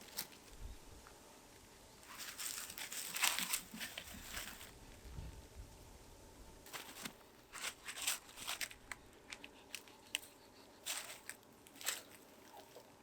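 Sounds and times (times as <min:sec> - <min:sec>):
crinkling and rustling: 0:00.0 - 0:00.6, 0:02.0 - 0:05.2, 0:06.6 - 0:13.0.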